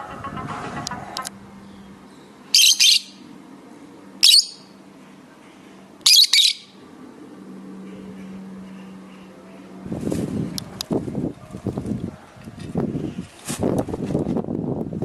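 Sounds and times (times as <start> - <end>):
faint low hum: 0.0 - 14.0
lovebirds squawking: 2.1 - 3.3, 4.2 - 4.8, 6.0 - 6.8.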